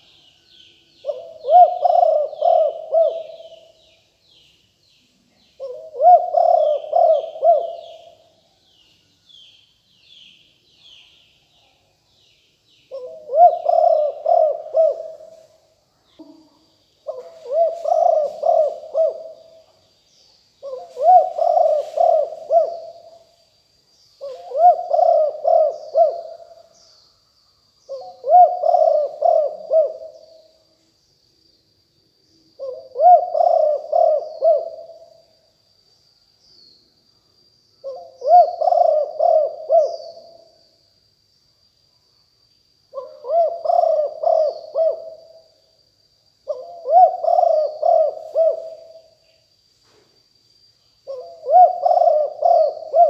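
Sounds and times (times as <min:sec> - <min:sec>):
faint small-bird chirps: 0:00.0 - 0:14.4, 0:15.0 - 0:40.9, 0:46.4 - 0:53.0
dove cooing: 0:01.0 - 0:03.8, 0:05.6 - 0:08.3, 0:12.9 - 0:15.5, 0:16.2 - 0:19.6, 0:20.6 - 0:23.2, 0:24.2 - 0:26.7, 0:27.9 - 0:30.5, 0:32.6 - 0:35.2, 0:37.8 - 0:40.5, 0:42.9 - 0:45.4, 0:46.4 - 0:49.2, 0:51.0 - 0:53.0.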